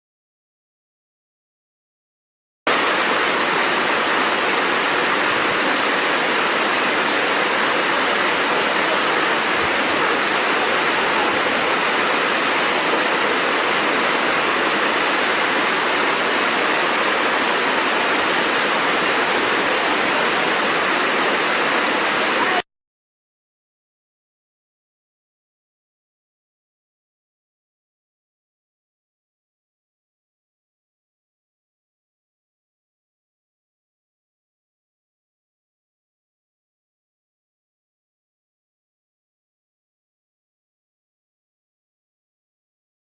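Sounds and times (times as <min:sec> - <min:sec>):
waterfall rushing: 0:02.7 - 0:22.6.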